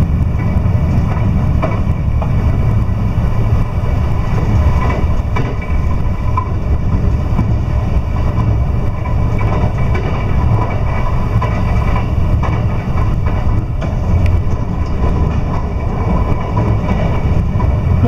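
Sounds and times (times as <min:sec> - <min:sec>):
train running rumble inside car: 0:00.0 - 0:18.0.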